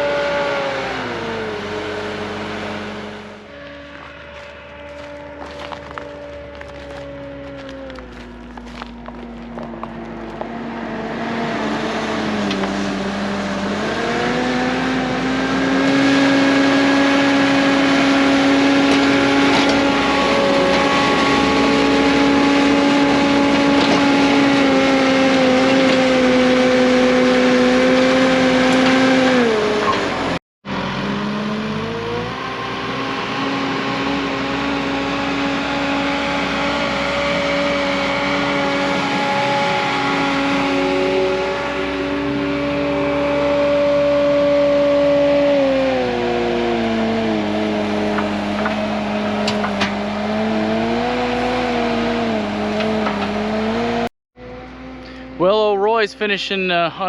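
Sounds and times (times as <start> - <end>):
diesel engine revving: 0.0 - 57.0.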